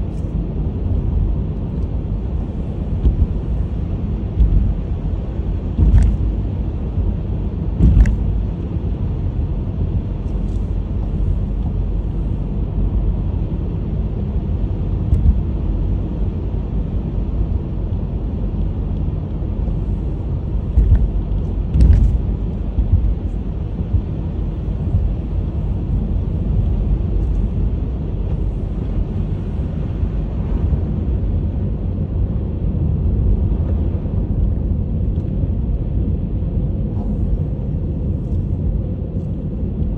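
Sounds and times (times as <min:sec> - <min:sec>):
tyres and engine rumbling: 0:00.0 - 0:39.9
brief thumps: 0:03.0 - 0:03.6.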